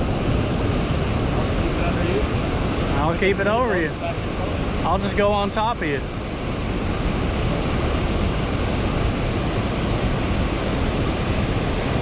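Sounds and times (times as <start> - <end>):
water rushing through dam outlet: 0.0 - 12.0.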